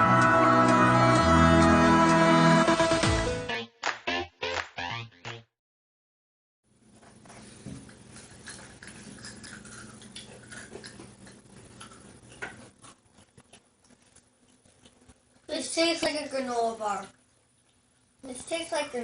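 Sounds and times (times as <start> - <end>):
crunching and chewing granola: 7.2 - 15.4.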